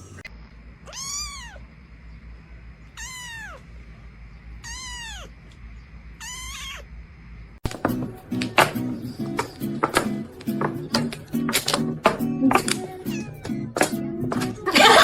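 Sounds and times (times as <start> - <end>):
cat meowing: 0.8 - 1.7, 2.9 - 3.7, 4.6 - 5.4, 6.2 - 6.9, 13.0 - 13.7.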